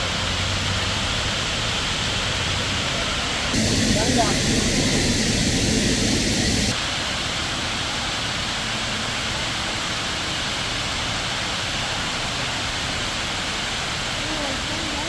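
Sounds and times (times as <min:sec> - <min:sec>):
waterfall rushing: 0:03.2 - 0:07.7.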